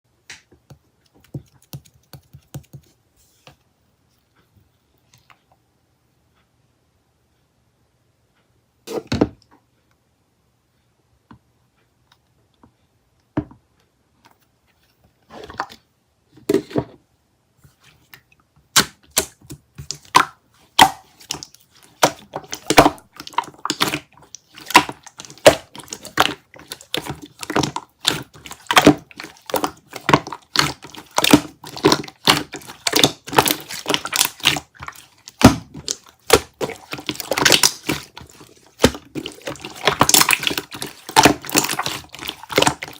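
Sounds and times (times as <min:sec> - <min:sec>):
sharp clicks and taps: 0:00.2 - 0:03.0.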